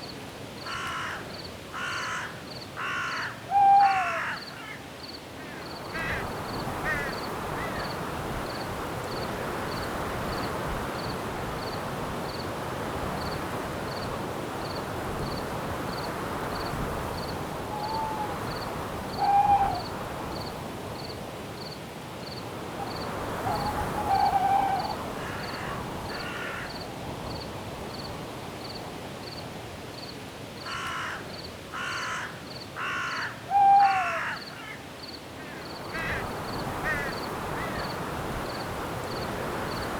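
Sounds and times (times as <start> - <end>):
harsh crow-like calls: 0.6 - 7.9, 17.7 - 19.9, 23.4 - 26.8, 30.7 - 37.9
crickets chirping: 0.6 - 39.9
owl hooting: 3.1 - 4.4, 17.7 - 19.9, 23.4 - 25.8, 33.0 - 34.4
wind in the trees: 5.0 - 30.2, 35.0 - 39.9.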